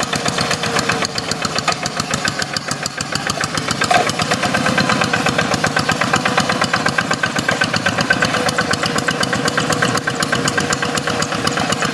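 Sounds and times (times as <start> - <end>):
diesel engine chugging: 0.0 - 11.9.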